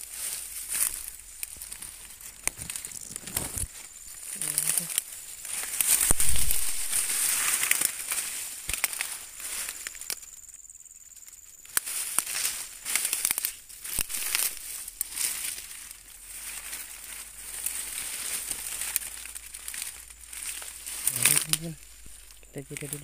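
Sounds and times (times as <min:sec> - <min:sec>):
footsteps crunching dry leaves: 0:00.0 - 0:10.5, 0:11.3 - 0:23.0.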